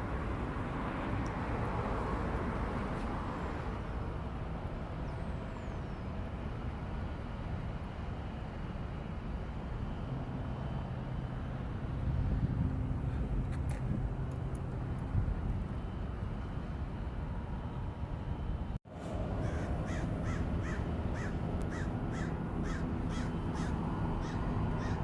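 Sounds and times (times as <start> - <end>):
low rumble of wind: 0.0 - 25.0.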